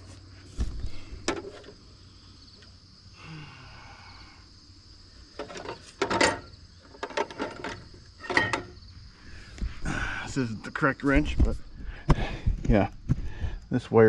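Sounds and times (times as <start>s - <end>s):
crickets chirring: 0.0s - 14.0s
dull thump: 0.5s - 1.6s, 11.2s - 13.3s
tools clicking and knocking: 5.4s - 8.8s.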